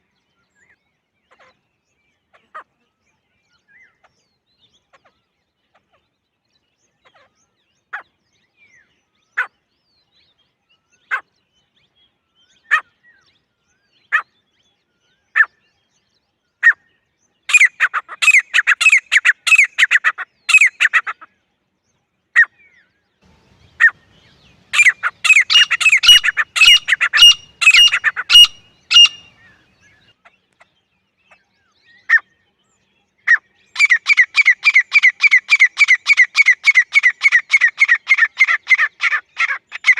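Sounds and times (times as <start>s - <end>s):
francolin calling: 17.5s - 21.2s, 23.3s - 29.7s, 33.3s - 39.9s.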